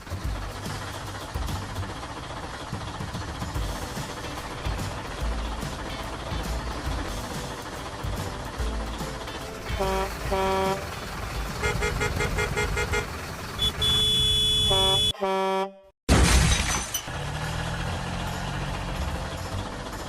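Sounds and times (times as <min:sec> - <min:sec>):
engine rumble: 0:00.0 - 0:15.1, 0:16.1 - 0:20.0
horn honks: 0:09.7 - 0:15.9
cartoon beeps: 0:13.6 - 0:15.2
crash: 0:16.1 - 0:17.4.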